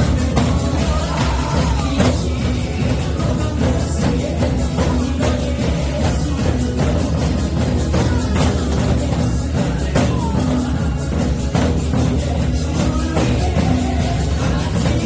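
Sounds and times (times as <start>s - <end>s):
live music with bass: 0.0s - 15.0s.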